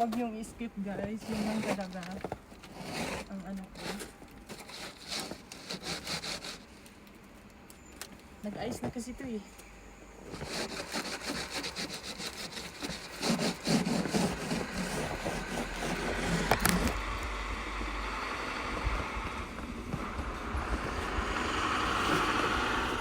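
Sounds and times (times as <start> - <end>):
scraping ice off a car: 0.0 - 6.9, 10.3 - 17.1.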